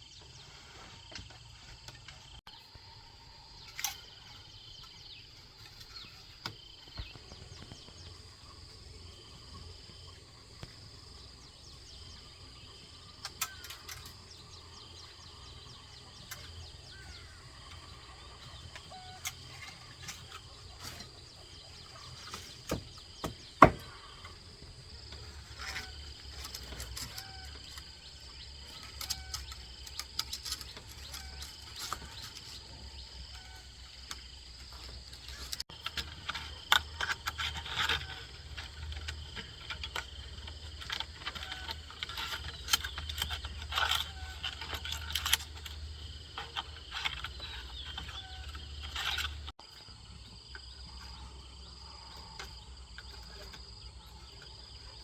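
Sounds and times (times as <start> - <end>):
insects chirring: 0.0 - 55.0
sharp knocks: 22.6 - 24.0.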